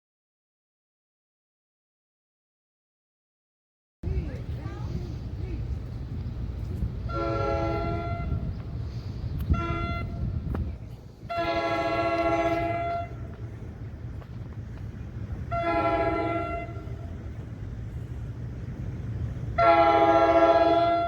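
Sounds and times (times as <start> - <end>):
low rumble of train: 4.0 - 21.0
train horn blasts: 7.1 - 8.5, 9.5 - 10.3, 11.2 - 13.4, 15.5 - 17.2, 19.6 - 21.0.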